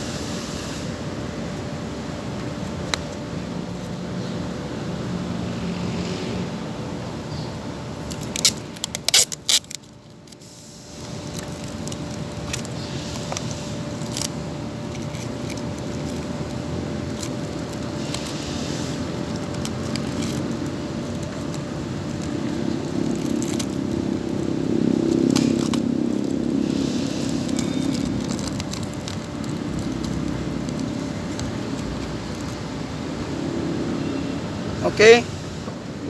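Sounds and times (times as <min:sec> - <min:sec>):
rustling: 0:08.0 - 0:33.0.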